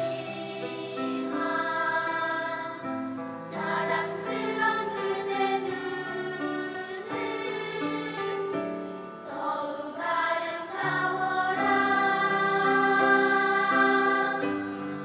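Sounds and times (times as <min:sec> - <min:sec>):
children's choir singing: 0:00.0 - 0:15.0.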